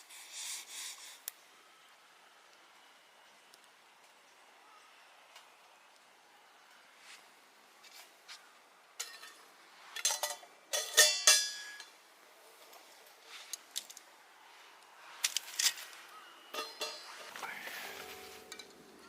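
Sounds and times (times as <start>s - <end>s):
cookware clinking together: 10.0s - 11.9s, 16.5s - 17.3s.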